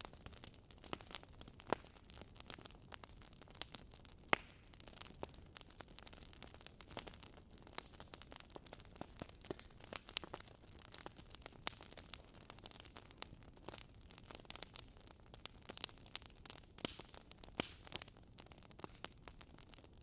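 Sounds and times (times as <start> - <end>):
fireplace fire crackling and popping: 0.0 - 20.0.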